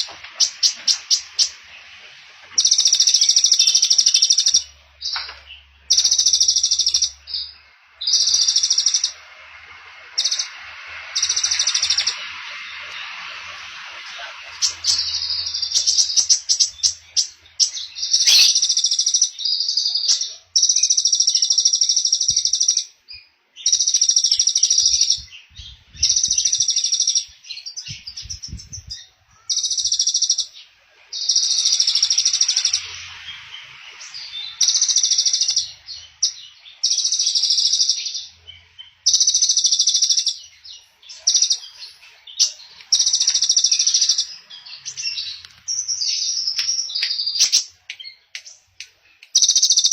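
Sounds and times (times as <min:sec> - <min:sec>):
songbird trilling: 0:14.7 - 0:22.9, 0:49.3 - 0:49.9.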